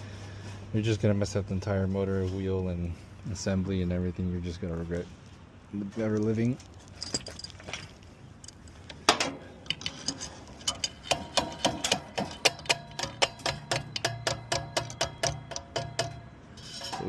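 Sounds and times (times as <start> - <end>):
metal knocks: 9.1 - 17.0
blower motor metallic ticking: 10.6 - 17.0.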